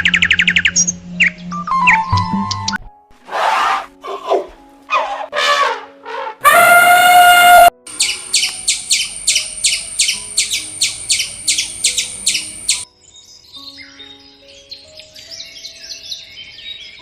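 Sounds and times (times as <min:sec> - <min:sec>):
quiet background music: 0:00.0 - 0:17.0
bird chirping rapidly: 0:06.5 - 0:12.8
faint different chirping: 0:07.9 - 0:14.2.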